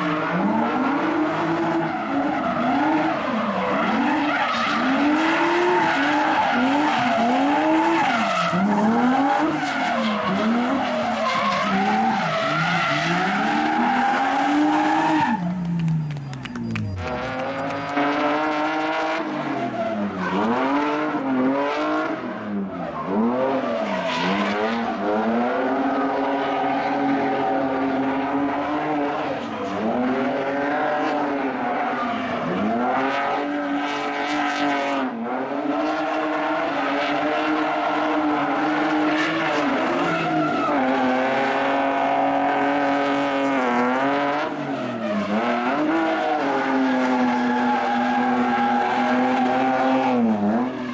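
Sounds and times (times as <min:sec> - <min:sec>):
tyres skidding: 0:00.0 - 0:21.5, 0:35.7 - 0:50.9
car engine revving: 0:00.0 - 0:50.9.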